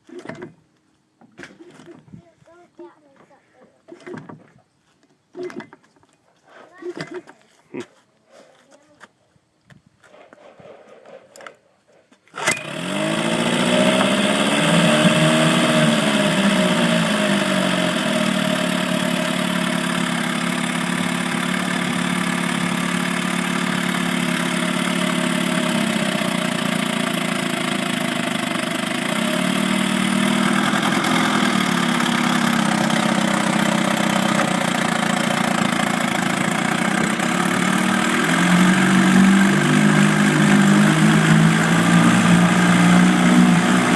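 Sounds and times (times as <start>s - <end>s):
small engine starting and running: 0.0s - 0.6s, 12.3s - 43.9s.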